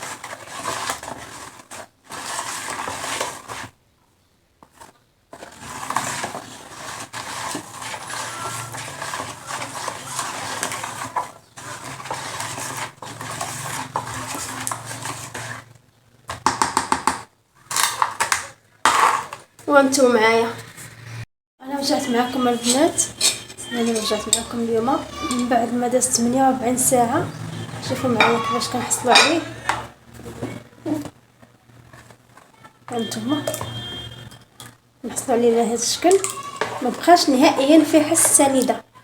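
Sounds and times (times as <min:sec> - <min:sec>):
spatula scraping a bowl: 0:00.0 - 0:03.8, 0:04.6 - 0:15.8, 0:21.8 - 0:31.1, 0:32.9 - 0:34.5, 0:35.1 - 0:38.8
utensil clatter: 0:04.6 - 0:15.7, 0:22.2 - 0:31.1.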